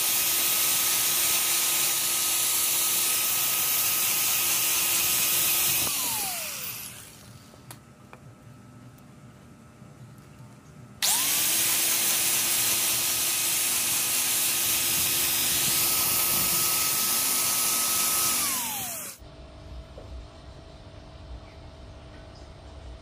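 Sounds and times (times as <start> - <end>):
power tool motor spinning: 0.0 - 7.5, 11.0 - 19.2.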